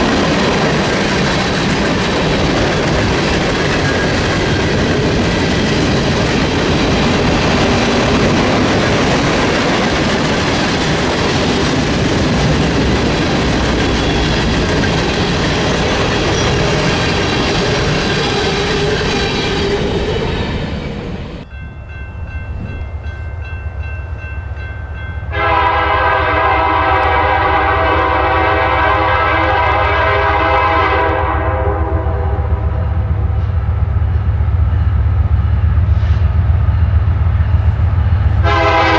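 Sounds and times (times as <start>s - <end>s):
train wheels clattering on rail: 0.0s - 21.5s
diesel locomotive rumble: 0.0s - 38.9s
locomotive air horn: 25.3s - 33.5s, 38.4s - 38.9s.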